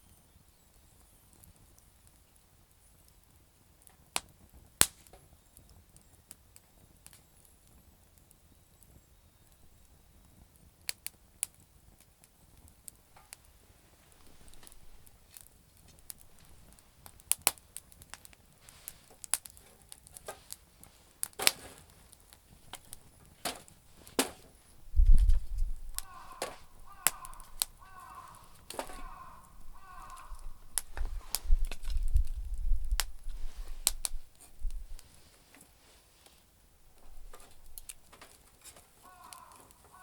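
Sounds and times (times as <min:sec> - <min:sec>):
campfire crackling: 0:00.1 - 0:40.0
wood pops and snaps: 0:03.9 - 0:05.2, 0:14.1 - 0:20.6, 0:21.2 - 0:35.0, 0:37.0 - 0:40.0
bird calling: 0:25.0 - 0:31.6, 0:38.9 - 0:40.0.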